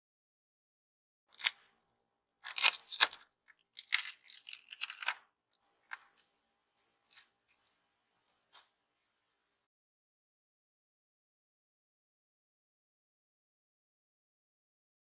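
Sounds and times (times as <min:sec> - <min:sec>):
scratchy scraping or tearing: 0:01.3 - 0:03.2, 0:03.8 - 0:05.2, 0:05.9 - 0:08.6.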